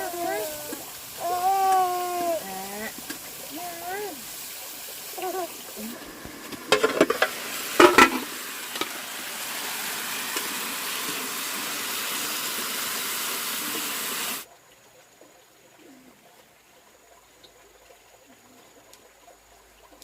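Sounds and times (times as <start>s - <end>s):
food sizzling in a pan: 0.0s - 14.5s
utensil clattering on pan: 6.5s - 9.0s.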